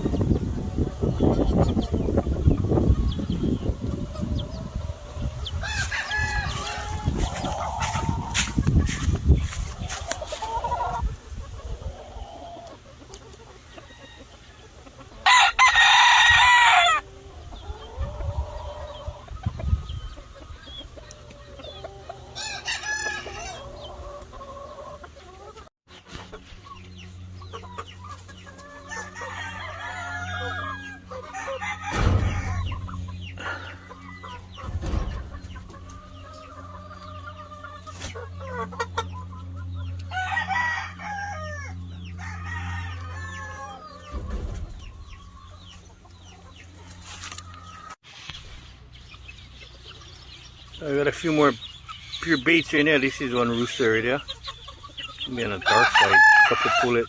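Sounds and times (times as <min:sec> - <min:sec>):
roosters crowing: 0:00.0 - 0:25.7, 0:26.4 - 0:48.0, 0:49.2 - 0:57.0
hens clucking: 0:00.0 - 0:57.0
steady low hum: 0:23.5 - 0:47.6.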